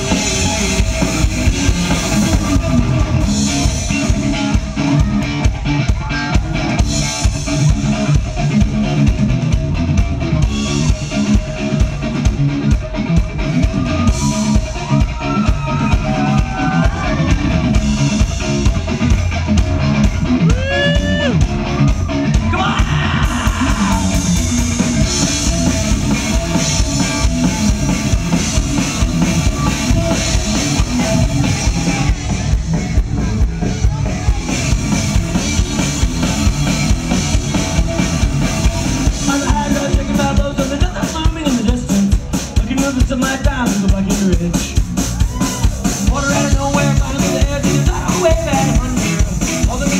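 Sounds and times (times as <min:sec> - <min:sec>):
drum kit beat: 0:00.0 - 0:49.9
live rock band playing: 0:00.0 - 0:49.9.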